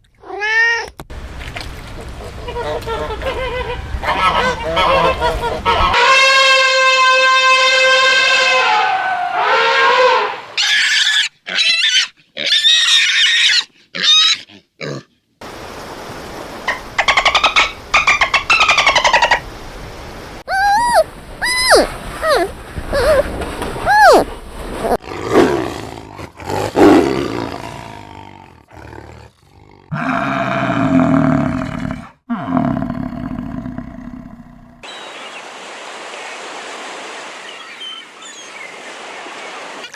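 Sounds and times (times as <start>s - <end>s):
pig squealing: 8.7s - 15.0s, 20.5s - 24.2s
large animal roaring: 25.0s - 34.8s.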